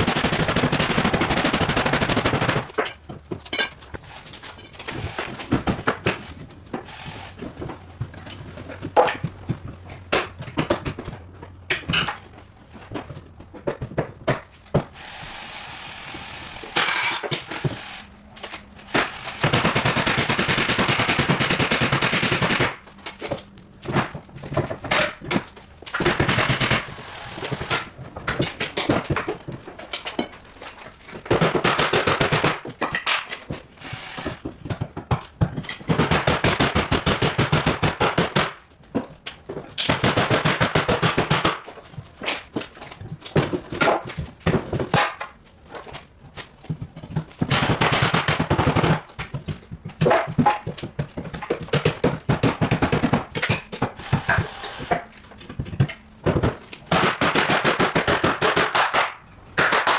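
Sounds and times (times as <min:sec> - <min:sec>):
hammering power tool: 0:00.0 - 0:02.9, 0:04.1 - 0:07.8, 0:14.8 - 0:22.8, 0:24.9 - 0:27.9, 0:33.8 - 0:34.8, 0:51.7 - 0:59.0.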